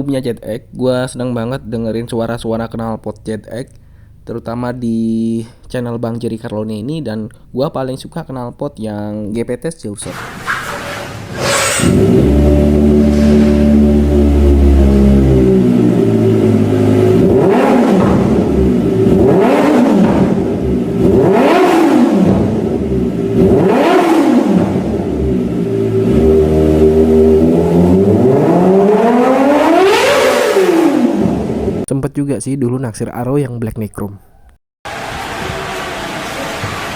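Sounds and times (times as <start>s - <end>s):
motorcycle engine revving: 10.1s - 31.9s.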